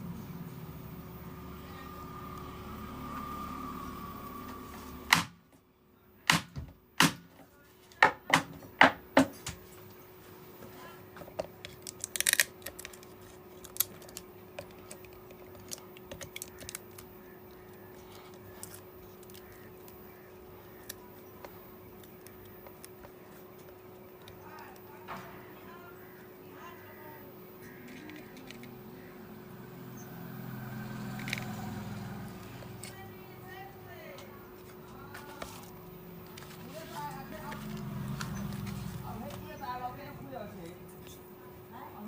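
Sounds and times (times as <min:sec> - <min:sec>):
steady low hum: 0:08.6 - 0:42.0
small tools clicking and tapping: 0:11.2 - 0:17.1, 0:27.8 - 0:28.8.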